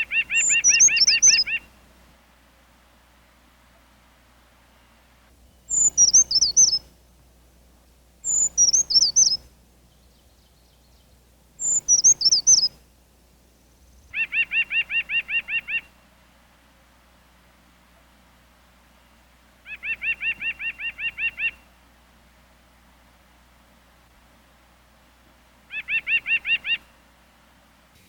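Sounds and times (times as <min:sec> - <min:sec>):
bird repeating low notes: 0:00.0 - 0:01.7, 0:04.8 - 0:06.8, 0:08.2 - 0:12.8
songbird singing: 0:00.0 - 0:02.0, 0:03.6 - 0:16.4, 0:18.8 - 0:21.8, 0:25.6 - 0:27.1.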